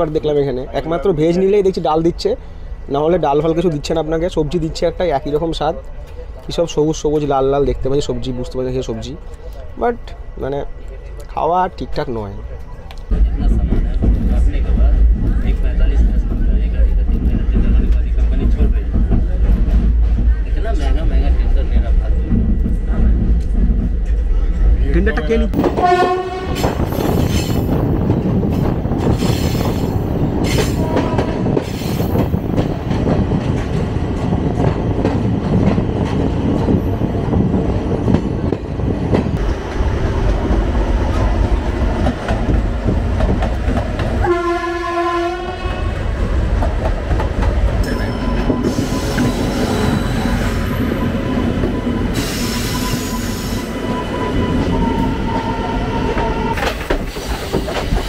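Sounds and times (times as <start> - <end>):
train horn blast: 25.6 - 26.8, 30.6 - 31.5, 44.2 - 46.0
train wheels clattering: 25.6 - 44.3, 56.1 - 58.0
high wheel squeal: 47.8 - 58.0.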